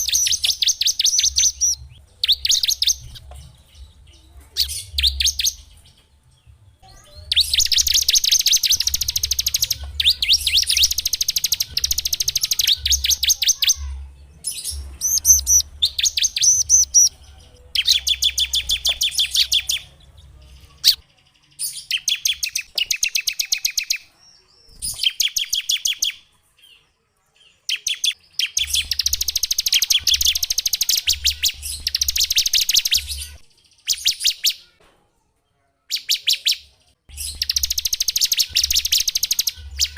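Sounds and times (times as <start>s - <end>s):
songbird trilling: 0.0s - 3.4s, 6.9s - 20.0s, 27.7s - 34.6s, 37.1s - 39.9s.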